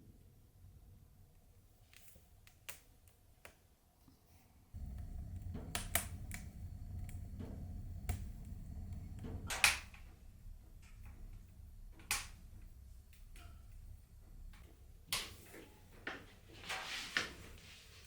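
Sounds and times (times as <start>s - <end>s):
wood fire crackling: 4.8s - 11.4s
low rumble: 4.8s - 11.7s.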